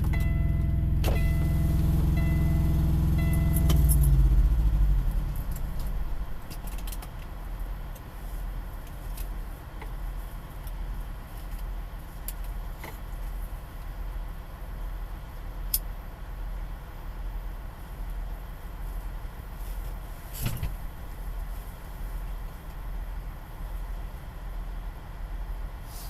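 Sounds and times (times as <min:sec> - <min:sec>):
passing vehicle engine: 0:00.0 - 0:06.8
vehicle engine idling: 0:00.0 - 0:26.0.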